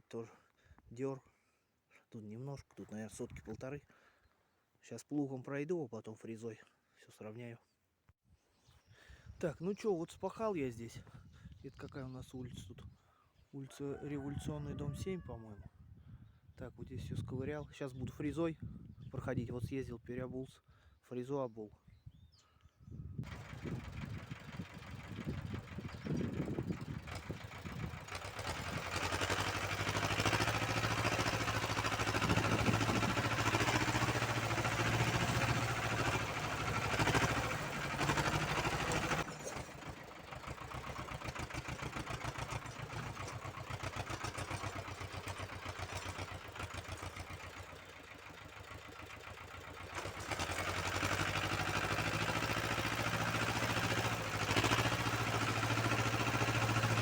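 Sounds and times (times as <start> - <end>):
tractor engine running: 23.2 - 57.0.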